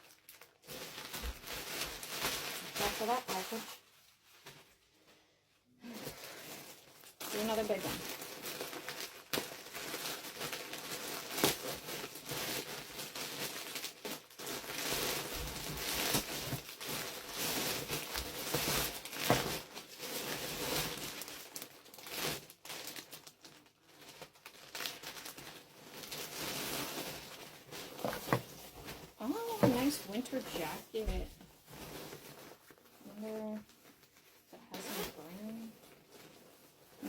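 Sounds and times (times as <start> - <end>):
packaging crinkling and rustling: 0.0 - 5.1, 5.8 - 37.0
packaging tearing: 5.9 - 30.6.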